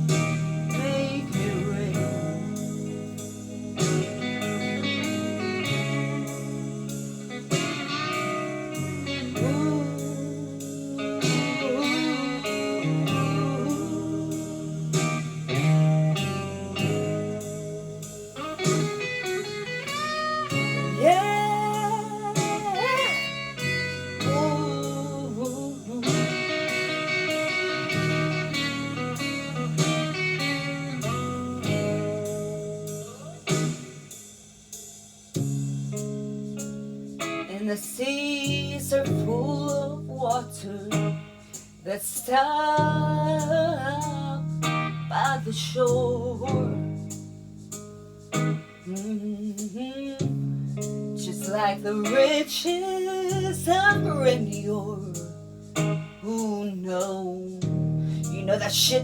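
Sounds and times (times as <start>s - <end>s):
steady drum beat: 0.0s - 37.4s
bass: 0.0s - 59.0s
slide guitar lead: 0.0s - 59.0s.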